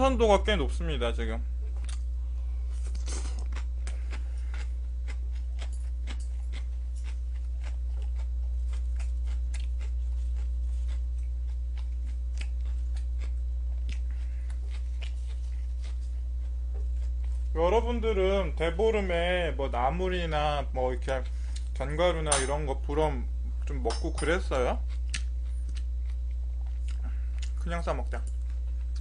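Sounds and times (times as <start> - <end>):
low electrical hum: 0.0 - 29.0
crunchy close chewing: 2.7 - 17.6, 24.8 - 29.0.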